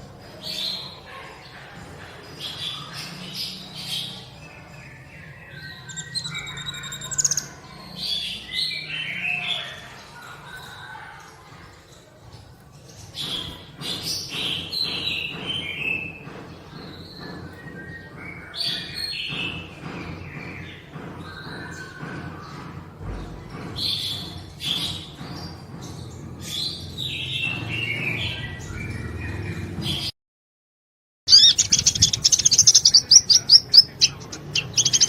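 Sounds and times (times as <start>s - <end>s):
sunbird singing: 4.9s - 9.4s, 31.3s - 35.0s.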